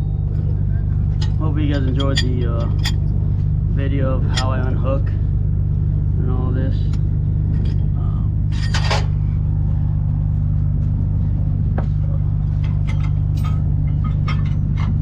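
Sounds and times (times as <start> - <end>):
diesel truck engine idling: 0.0 - 15.0
trailer hardware clicks and knocks: 11.8 - 15.0.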